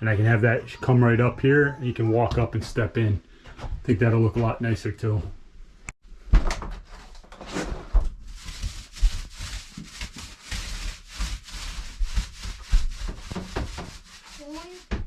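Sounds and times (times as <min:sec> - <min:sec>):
rubbing strokes against wood: 0:08.3 - 0:15.0.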